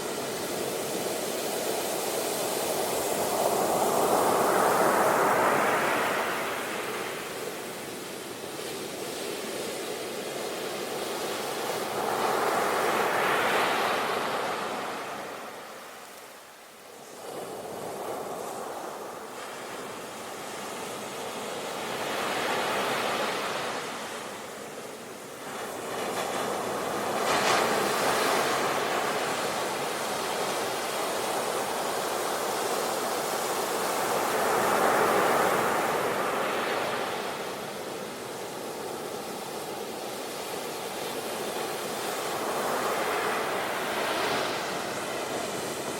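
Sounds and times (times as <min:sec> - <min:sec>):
sea waves breaking on shore: 0:00.0 - 0:45.9.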